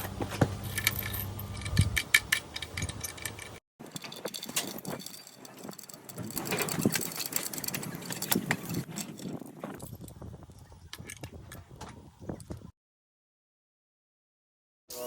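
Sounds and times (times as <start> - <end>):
hard objects clicking and clinking: 0.6 - 10.1.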